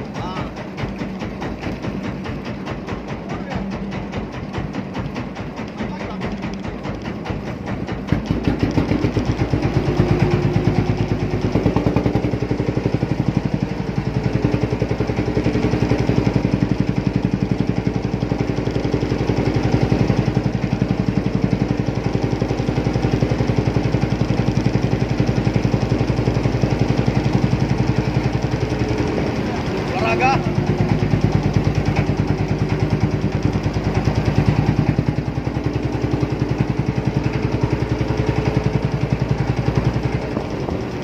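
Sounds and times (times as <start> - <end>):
boat engine running: 0.0 - 41.0.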